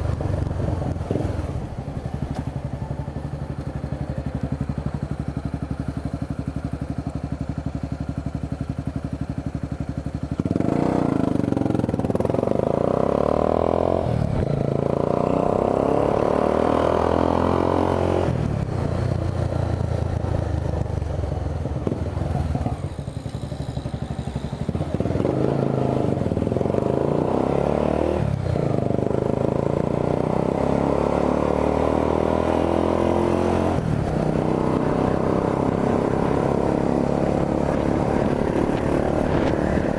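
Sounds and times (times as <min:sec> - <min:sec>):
motorcycle engine idling and accelerating: 0:00.0 - 0:39.9.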